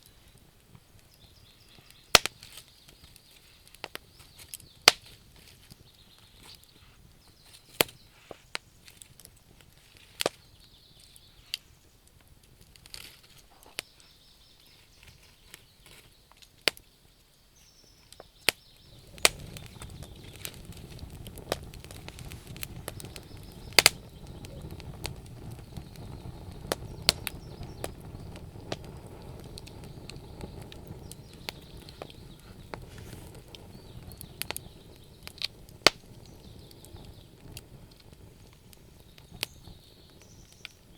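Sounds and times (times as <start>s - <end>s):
low rush of fire: 0.0s - 16.9s, 17.8s - 40.9s
wood fire crackling: 0.0s - 40.9s.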